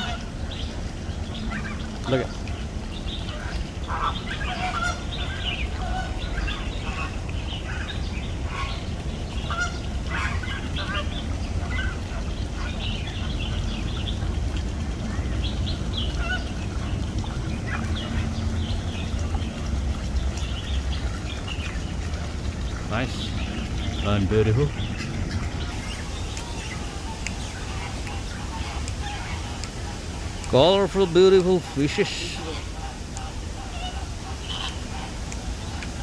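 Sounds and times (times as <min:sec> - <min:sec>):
flamingos honking: 0:03.3 - 0:13.6, 0:16.1 - 0:19.0, 0:20.6 - 0:36.0
steady low rumble: 0:13.5 - 0:31.2.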